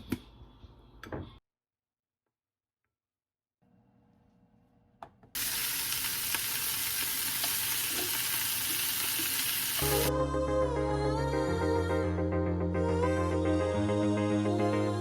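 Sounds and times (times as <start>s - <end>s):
food sizzling in a pan: 5.4s - 10.1s
background music: 9.8s - 15.0s.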